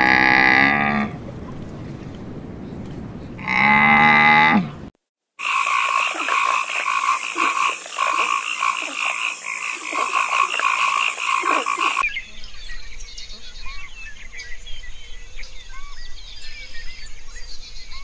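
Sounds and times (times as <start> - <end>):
camel bellowing: 0.0 - 1.2, 3.4 - 4.8
frogs croaking: 5.4 - 12.1.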